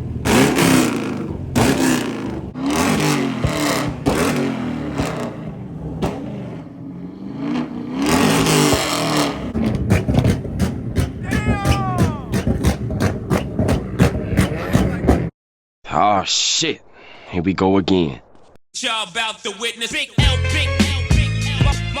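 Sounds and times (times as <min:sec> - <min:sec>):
exhaust pops and bangs: 0:00.0 - 0:06.6, 0:08.2 - 0:15.3
car engines revving: 0:00.0 - 0:15.3.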